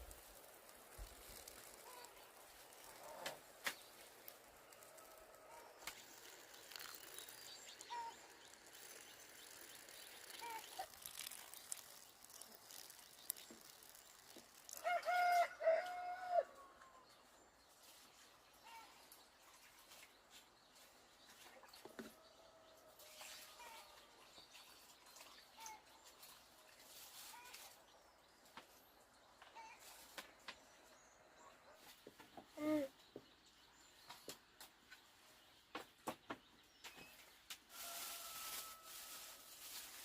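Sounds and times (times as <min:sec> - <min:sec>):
rooster crowing: 0:14.7 - 0:16.7.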